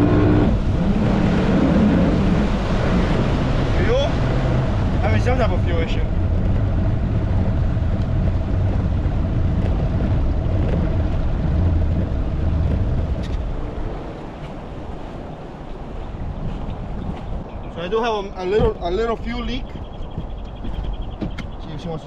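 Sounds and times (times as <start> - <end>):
outboard motor rumbling: 0.0 - 22.0.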